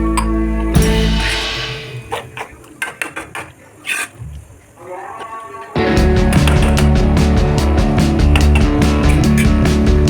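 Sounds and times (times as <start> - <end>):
rock music with guitar and drums: 0.0 - 2.1, 5.8 - 10.0.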